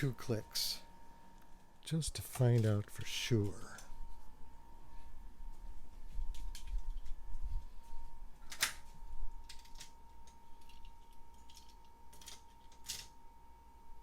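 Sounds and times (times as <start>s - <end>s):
faint high hum: 0.0s - 14.0s.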